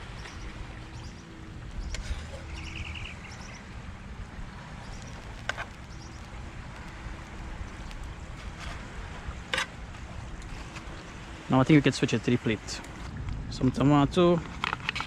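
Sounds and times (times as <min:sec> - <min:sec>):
small bird chirping: 0:01.8 - 0:03.7.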